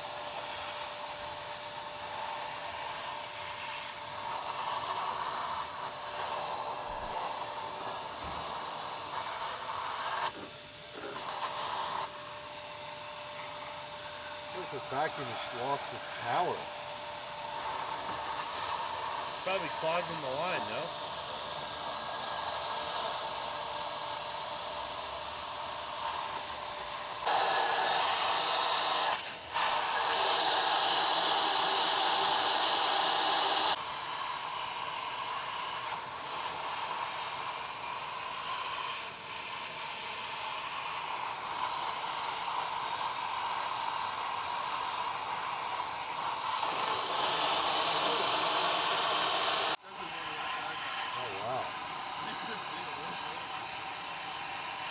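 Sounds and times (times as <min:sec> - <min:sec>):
shop vacuum running: 0:00.0 - 0:54.9.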